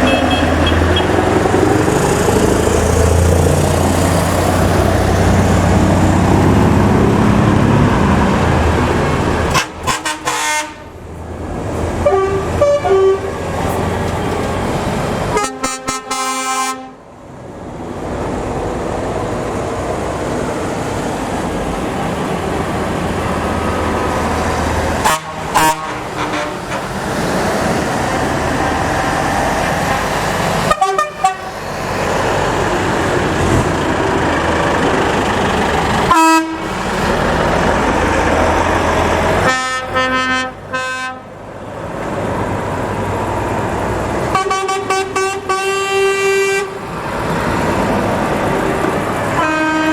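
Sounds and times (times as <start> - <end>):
truck horns: 0.0 - 17.1, 24.7 - 28.4, 29.5 - 37.2, 38.4 - 41.4, 44.2 - 47.4, 49.2 - 49.9
heavy trucks driving past: 0.0 - 49.9.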